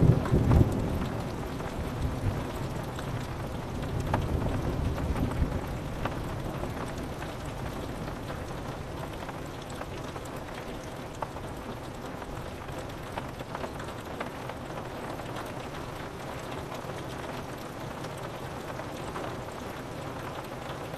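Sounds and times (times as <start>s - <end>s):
low thunder rumble: 0.0s - 6.6s
rain on a window: 0.0s - 20.9s.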